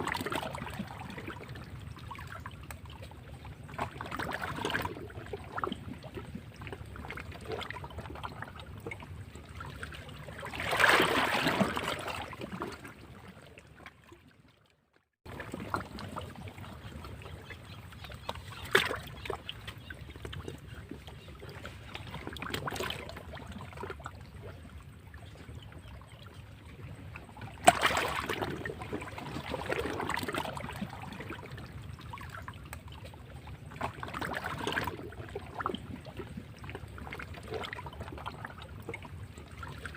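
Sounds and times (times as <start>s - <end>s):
sea waves breaking over rocks: 10.4s - 12.8s.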